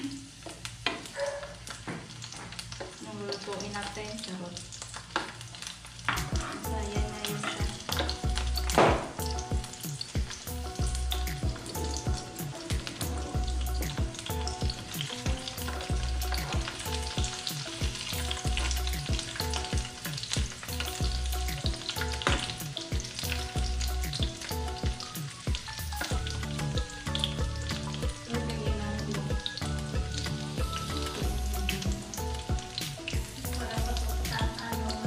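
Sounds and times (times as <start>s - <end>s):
food sizzling in hot oil: 0.0s - 35.0s
spatula stirring in pan: 4.9s - 8.8s.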